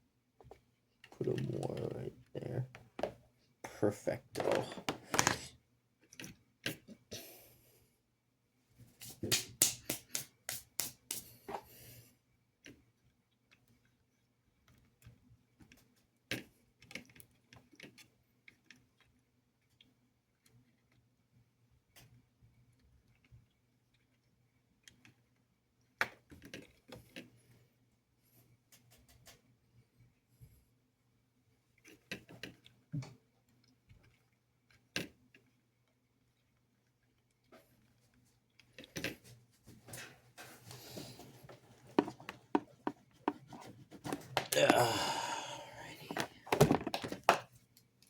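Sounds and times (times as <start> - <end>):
plastic parts clicking and tapping: 40.9 - 44.5, 46.1 - 47.5.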